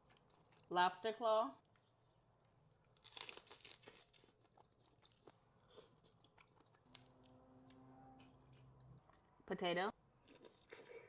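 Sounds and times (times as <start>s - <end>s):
lobster shell crunching: 2.9s - 7.3s.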